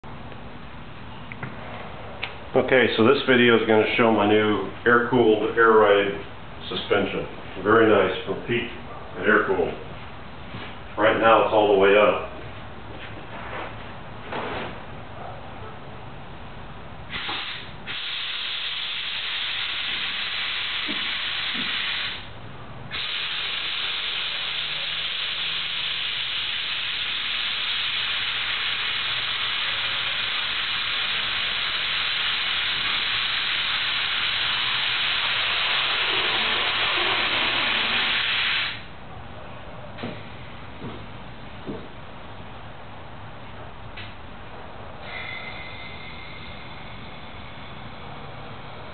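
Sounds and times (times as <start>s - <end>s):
air suspension hissing: 17.1s - 22.3s, 22.9s - 38.9s, 45.0s - 48.9s.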